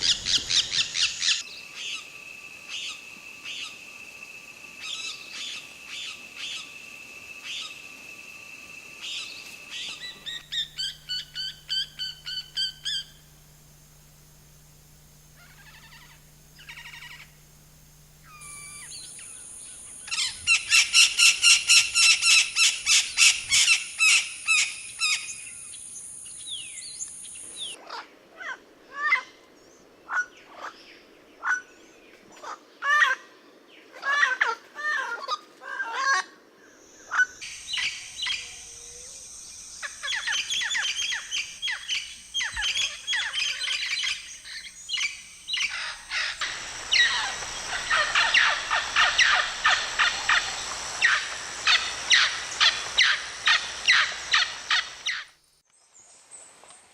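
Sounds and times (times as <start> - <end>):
bird chattering: 10.0 - 13.4, 14.8 - 19.3, 40.1 - 55.2.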